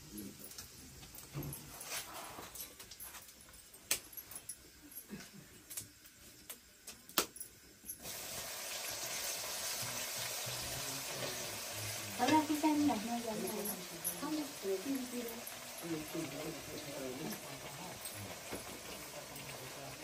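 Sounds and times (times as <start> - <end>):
food sizzling in hot oil: 7.6 - 20.0.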